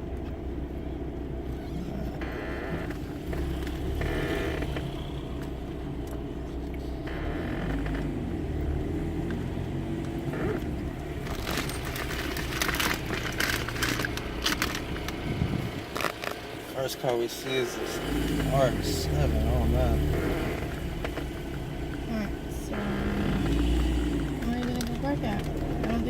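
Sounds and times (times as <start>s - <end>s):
car engine and road noise: 0.0s - 26.0s
crackling and rattling clicks: 2.3s - 16.5s, 20.1s - 22.1s, 22.7s - 26.0s.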